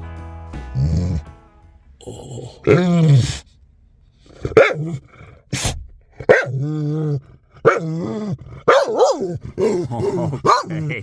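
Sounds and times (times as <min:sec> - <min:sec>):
dog barking and howling: 0:02.6 - 0:03.4, 0:04.4 - 0:05.1, 0:06.2 - 0:11.0.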